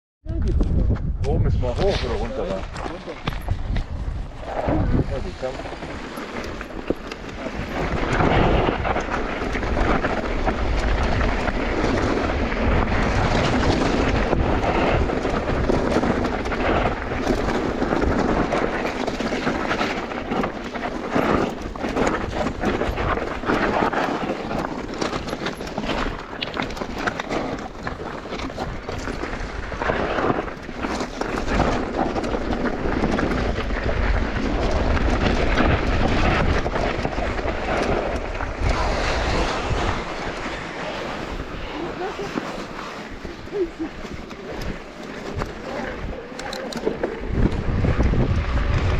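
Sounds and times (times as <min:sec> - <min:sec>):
wind buffeting microphone: 0:00.2 - 0:48.9
bike tyres rolling on dirt: 0:00.6 - 0:48.9
bike clattering over bumps: 0:05.4 - 0:38.9.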